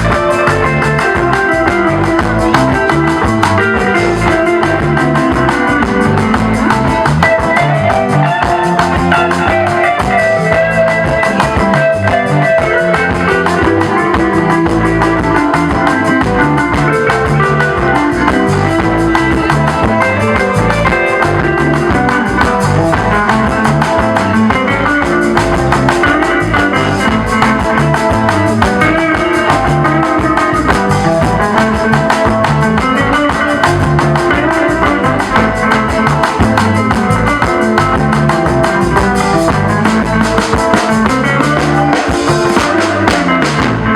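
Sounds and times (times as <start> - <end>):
bass line: 0.0 - 43.9
drum kit: 0.0 - 43.9
electric guitar solo: 0.0 - 43.9.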